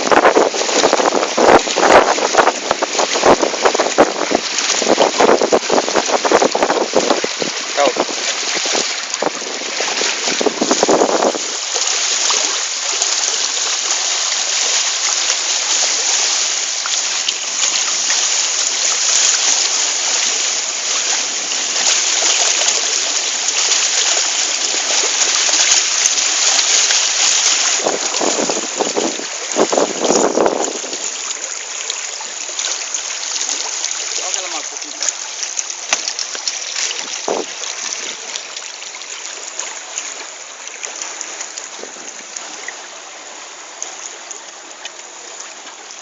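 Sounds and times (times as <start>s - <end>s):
low rumbling gusts: 0.0s - 16.6s, 17.5s - 31.3s
wind and water rushing: 0.0s - 46.0s.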